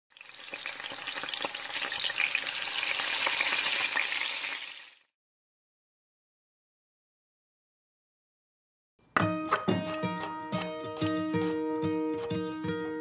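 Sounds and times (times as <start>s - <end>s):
food sizzling in a frying pan: 0.1s - 5.1s.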